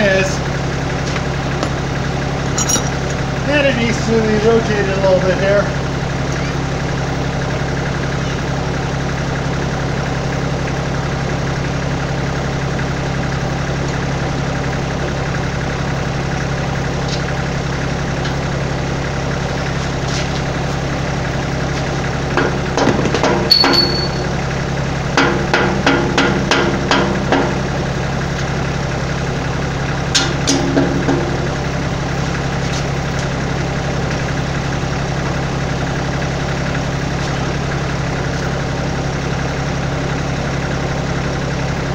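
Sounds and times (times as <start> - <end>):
diesel tractor engine idling: 0.0 - 41.9
metal knocks and clanks: 1.6 - 1.9, 2.5 - 3.2, 22.3 - 24.3.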